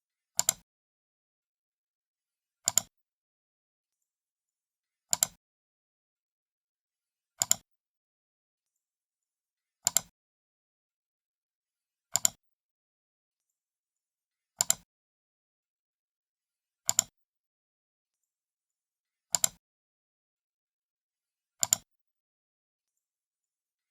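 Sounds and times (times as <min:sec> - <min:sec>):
computer mouse button clicks: 0:02.7 - 0:02.9, 0:05.1 - 0:05.4, 0:21.6 - 0:21.8.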